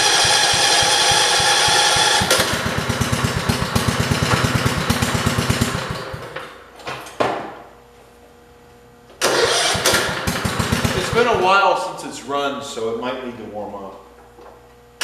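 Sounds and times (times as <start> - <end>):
engine chugging: 0.0 - 6.3, 9.3 - 11.6
engine cranking whine: 0.0 - 6.4, 9.2 - 11.5.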